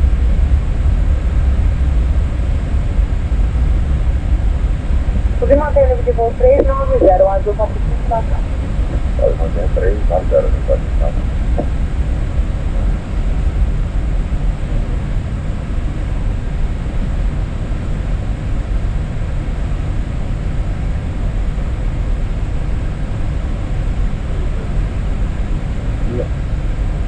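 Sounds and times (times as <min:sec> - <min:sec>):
cockpit air and engine rumble: 0:00.0 - 0:27.0.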